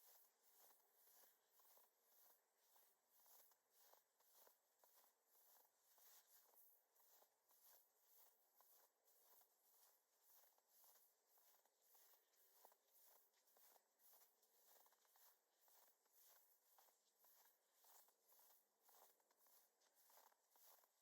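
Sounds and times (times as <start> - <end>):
footsteps crunching in snow: 0.0 - 21.0.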